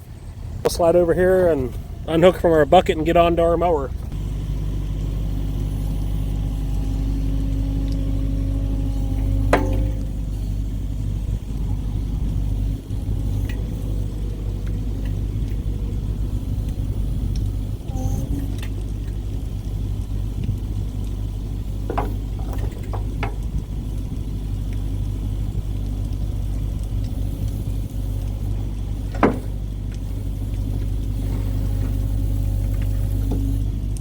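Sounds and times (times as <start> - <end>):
diesel engine idling: 0.0 - 34.0
sharp metal clanks: 9.4 - 10.2.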